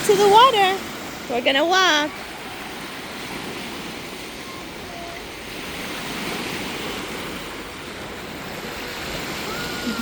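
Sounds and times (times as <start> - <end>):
lake waves washing on shore: 0.0 - 10.0.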